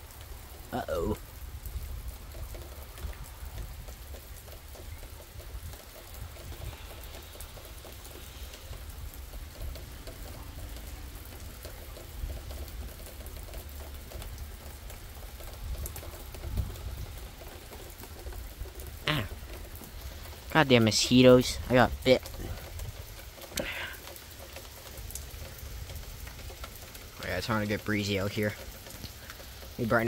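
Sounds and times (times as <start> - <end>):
rain falling: 0.0 - 30.0
wind buffeting microphone: 1.3 - 10.8, 15.2 - 24.1.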